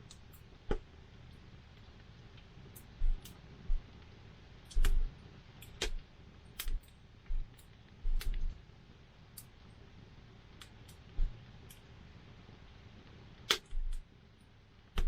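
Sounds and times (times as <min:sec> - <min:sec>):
campfire crackling and popping: 0:00.0 - 0:09.8, 0:12.9 - 0:15.0.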